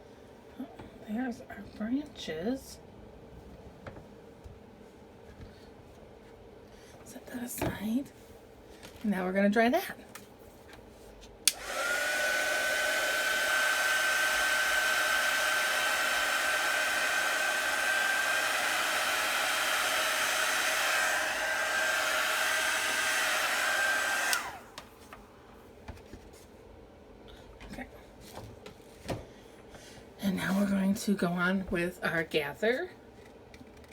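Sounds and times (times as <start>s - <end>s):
hair dryer switch click: 11.5s - 12.3s, 22.8s - 24.6s
hair dryer blowing: 11.5s - 24.9s.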